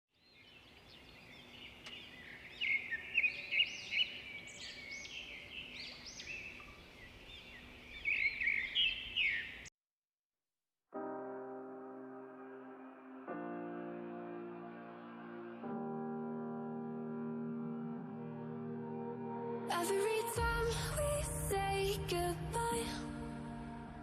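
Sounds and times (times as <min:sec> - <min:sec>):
songbirds chirping and singing: 0:00.2 - 0:09.7.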